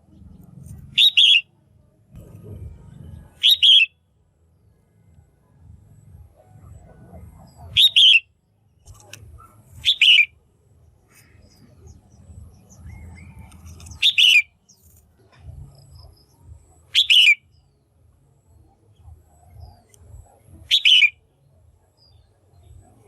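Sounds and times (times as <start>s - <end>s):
bird calling with falling notes: 0.9s - 1.5s, 3.0s - 4.0s, 7.2s - 8.3s, 8.9s - 10.4s, 11.1s - 14.9s, 16.8s - 17.7s, 20.6s - 21.2s.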